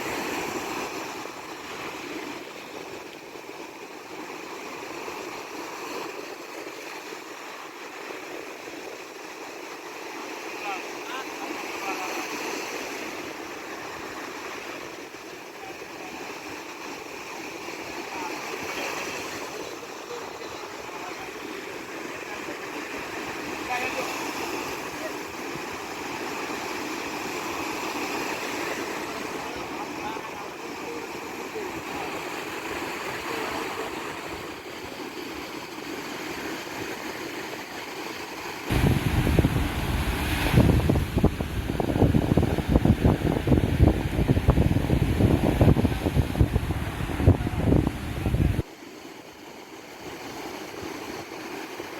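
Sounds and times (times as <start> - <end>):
water rushing: 0.0 - 51.9
wind at sea: 0.0 - 51.9
wind buffeting microphone: 38.7 - 48.6.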